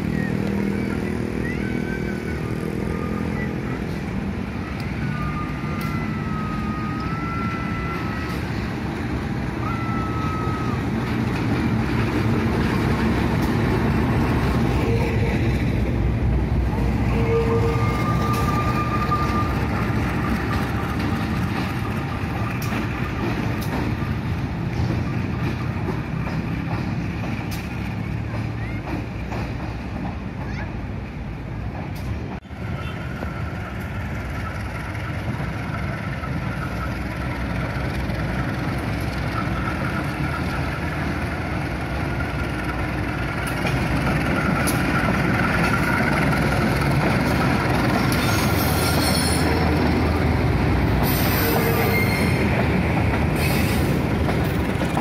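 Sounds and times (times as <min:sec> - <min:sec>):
diesel locomotive engine rumbling: 0:00.0 - 0:55.0
street traffic: 0:00.0 - 0:55.0
thin gliding squeals: 0:17.0 - 0:20.8, 0:47.7 - 0:50.1, 0:51.0 - 0:52.6.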